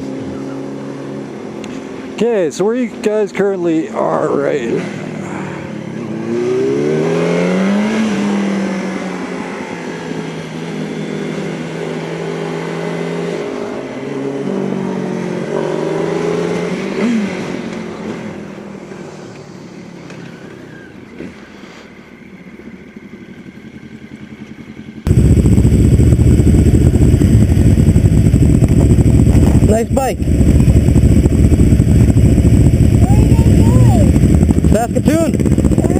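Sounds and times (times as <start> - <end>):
motorcycle engine accelerating: 3.8 - 21.5, 22.2 - 35.9
loud rough rumbling: 25.0 - 35.9.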